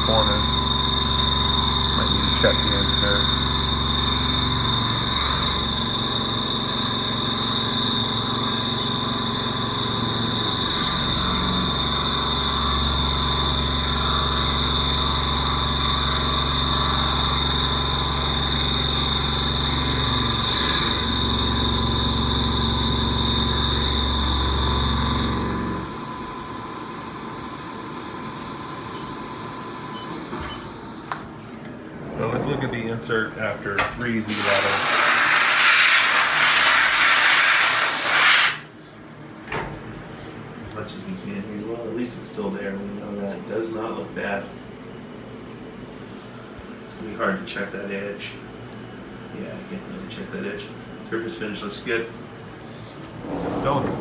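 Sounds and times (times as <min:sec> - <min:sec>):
machine hum: 0:00.0 - 0:30.1, 0:30.8 - 0:34.8, 0:52.1 - 0:54.0
milling machine cutting with whine: 0:00.0 - 0:30.5.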